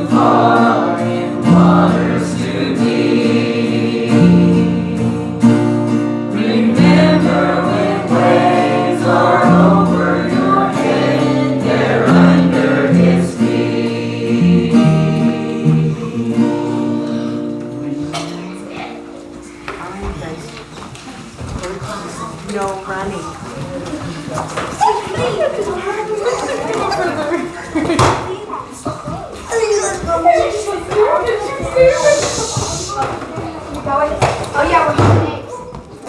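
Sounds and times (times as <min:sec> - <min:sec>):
instrumental accompaniment: 0:00.0 - 0:19.8
congregation singing a hymn: 0:00.0 - 0:20.4, 0:30.5 - 0:33.4.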